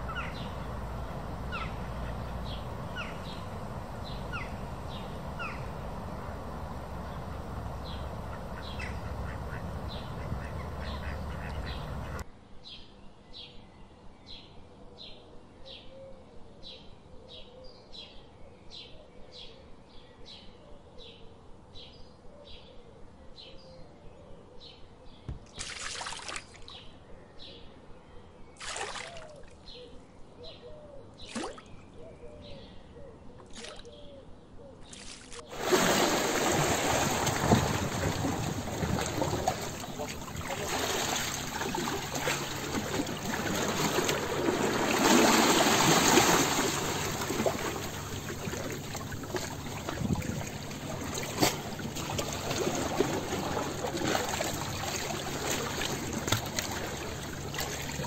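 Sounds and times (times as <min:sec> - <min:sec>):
birds chirping: 0:00.0 - 0:12.2, 0:28.6 - 0:58.0
steady low hush: 0:00.0 - 0:12.2.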